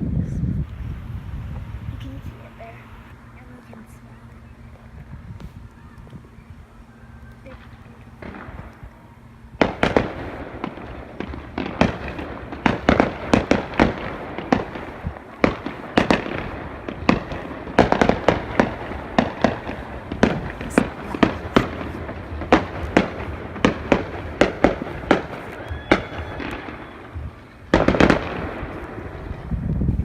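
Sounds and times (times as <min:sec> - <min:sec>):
fireworks bangs: 0:00.5 - 0:30.0.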